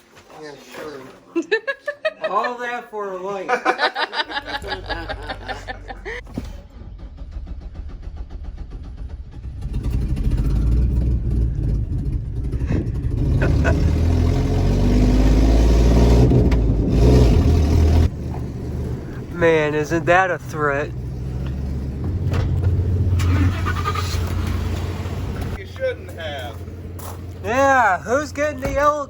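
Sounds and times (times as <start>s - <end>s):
vehicle engine accelerating: 4.5s - 29.0s.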